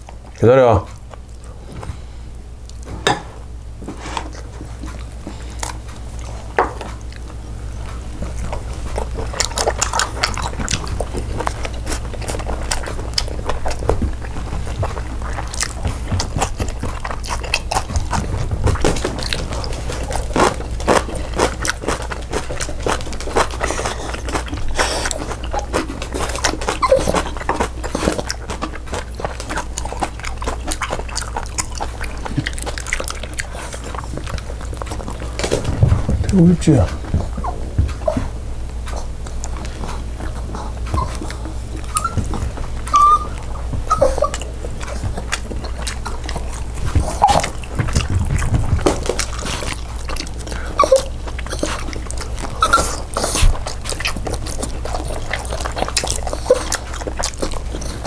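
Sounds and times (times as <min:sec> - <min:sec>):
chewing and crunching food: 0:00.0 - 0:58.0
steady low hum: 0:00.0 - 0:58.0.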